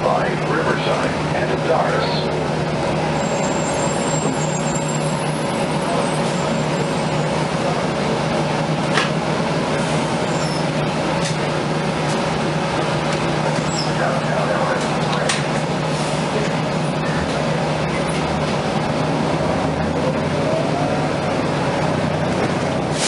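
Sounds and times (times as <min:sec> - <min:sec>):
bus engine drone: 0:00.0 - 0:23.0
loud ventilation blowers: 0:00.0 - 0:23.0.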